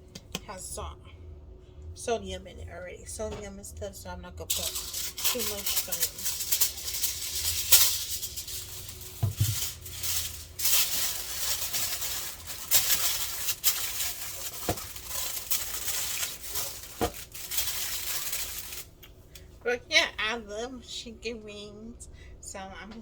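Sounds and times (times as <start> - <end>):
shaking and rustling: 4.5 - 19.0.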